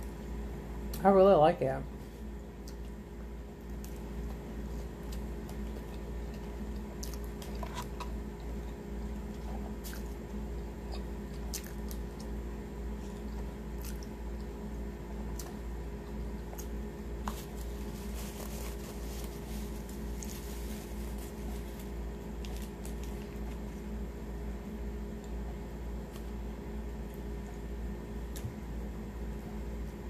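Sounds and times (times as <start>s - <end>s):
steady low hum: 0.0s - 30.0s
wet chewing and biting: 3.7s - 14.6s.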